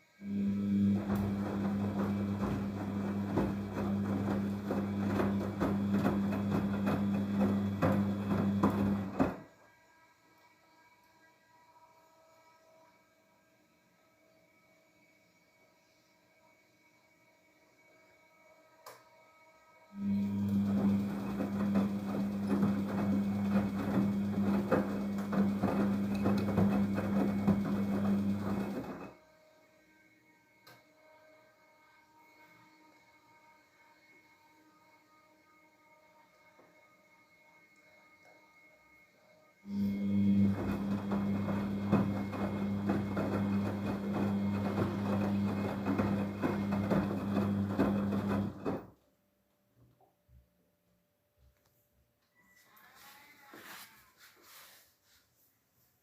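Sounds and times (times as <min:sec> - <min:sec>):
washing machine motor hum: 0:00.2 - 0:09.4, 0:20.0 - 0:29.2, 0:39.7 - 0:48.9
wet laundry tumbling and knocking: 0:00.8 - 0:09.4, 0:20.3 - 0:29.1, 0:39.7 - 0:48.9.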